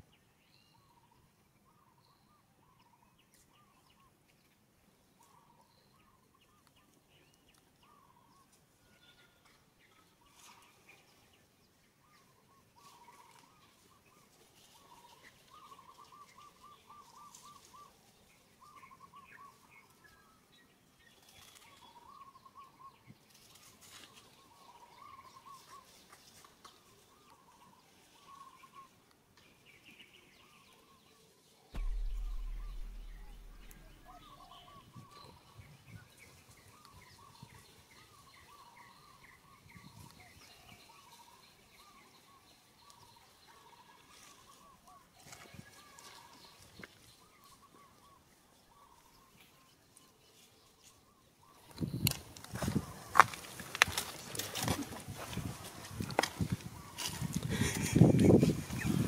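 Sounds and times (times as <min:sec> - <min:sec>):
faint outdoor background noise: 0:00.0 - 0:59.0
low rumble on microphone: 0:31.8 - 0:35.0.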